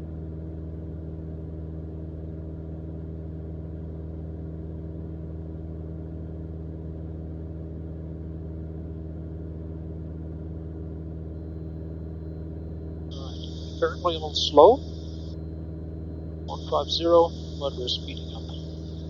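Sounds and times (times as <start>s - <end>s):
aircraft cabin engine drone: 9.3s - 19.0s.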